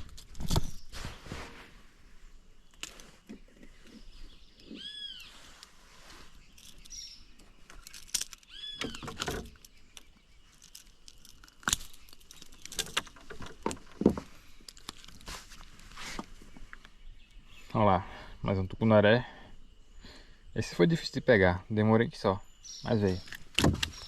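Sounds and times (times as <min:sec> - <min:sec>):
handling knocks and rustles: 0:00.0 - 0:01.8, 0:05.6 - 0:16.8, 0:23.0 - 0:24.0
bird calling: 0:02.6 - 0:14.6, 0:22.2 - 0:24.0.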